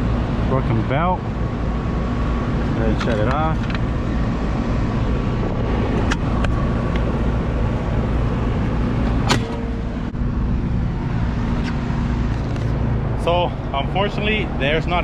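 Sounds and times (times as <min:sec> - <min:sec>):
air conditioner droning: 0:00.0 - 0:15.0.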